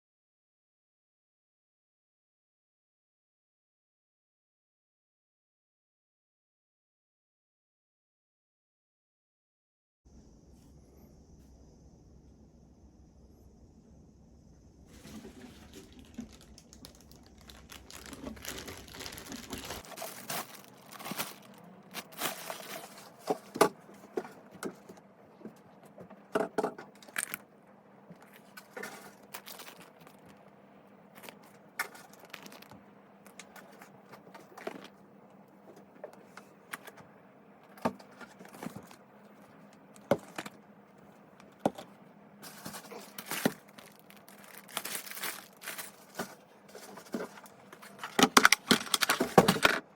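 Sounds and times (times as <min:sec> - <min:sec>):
faint rustling and crinkling: 0:14.9 - 0:27.4, 0:28.1 - 0:37.0, 0:37.6 - 0:49.7.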